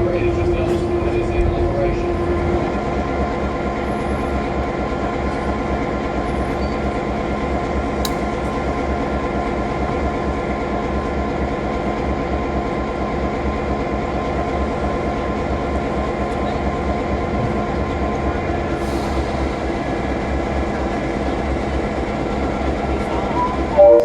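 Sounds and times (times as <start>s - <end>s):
train wheels rumbling: 0.0s - 23.8s.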